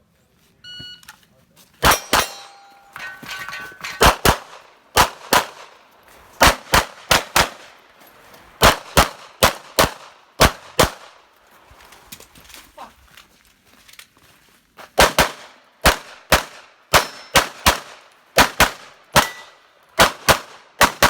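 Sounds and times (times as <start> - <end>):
pistol shots: 1.8 - 2.9, 3.9 - 5.8, 6.4 - 7.8, 8.6 - 11.2, 15.0 - 21.0
steel targets ringing: 1.8 - 4.1, 17.0 - 17.4, 19.2 - 19.6.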